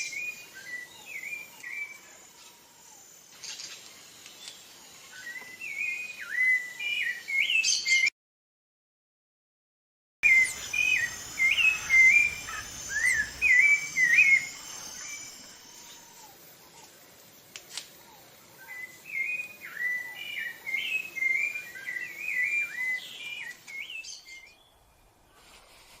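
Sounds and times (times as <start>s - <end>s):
faint steady high hiss: 0.0s - 7.7s, 10.2s - 26.0s
thrush whistling song: 10.2s - 16.8s, 18.6s - 25.6s.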